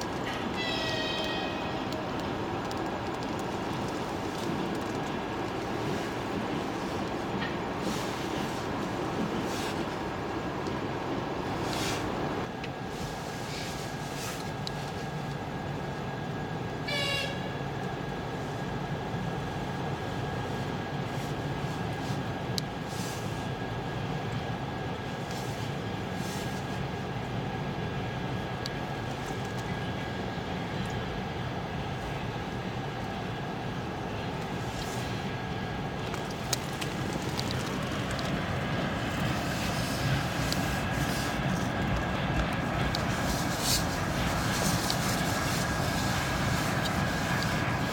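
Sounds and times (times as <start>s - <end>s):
freight train rolling noise: 0.0s - 47.9s
locomotive whistle: 0.5s - 1.9s, 16.8s - 17.6s.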